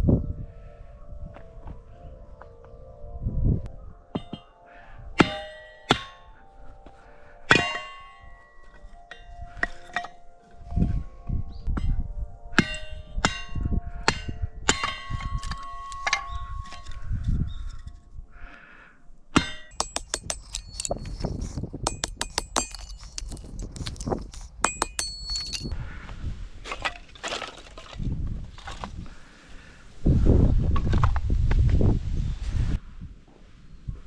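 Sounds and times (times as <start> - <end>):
metal objects clinking and clanging: 19.7 - 25.7.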